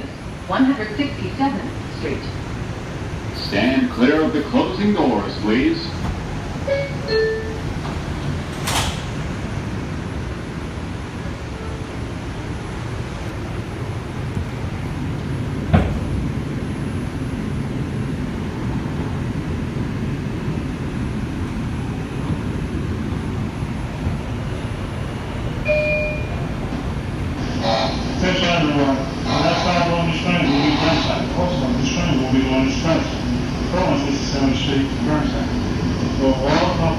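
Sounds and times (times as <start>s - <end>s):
train doors shutting: 0.0s - 36.9s
train rumbling: 0.0s - 36.9s
short tone: 6.7s - 7.6s, 25.7s - 26.4s
two-note door chime: 6.7s - 7.6s, 25.7s - 26.4s.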